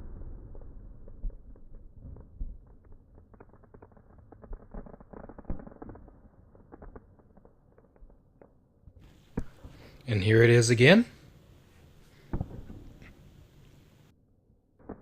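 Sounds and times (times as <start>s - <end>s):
low rumble: 0.0s - 3.2s
firework crackles and pops: 0.0s - 14.1s.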